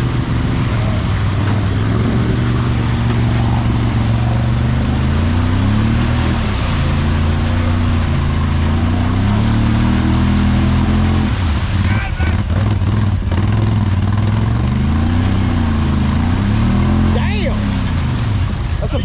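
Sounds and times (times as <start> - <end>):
utility vehicle engine under load: 0.0 - 18.8.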